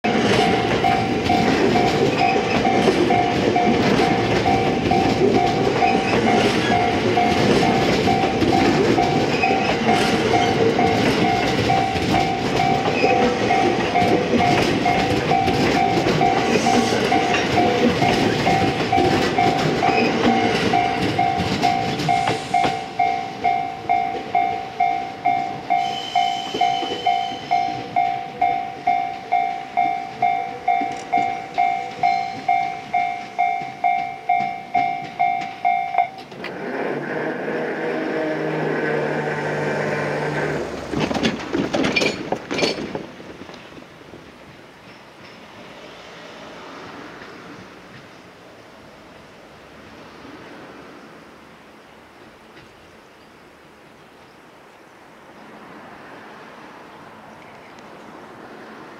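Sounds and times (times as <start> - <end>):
level-crossing warning bell: 0.0 - 36.4
train passing on rails: 0.0 - 58.9.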